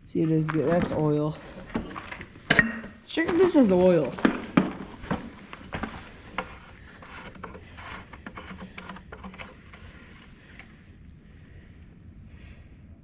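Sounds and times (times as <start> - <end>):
ticks and rubbing: 3.1 - 10.6.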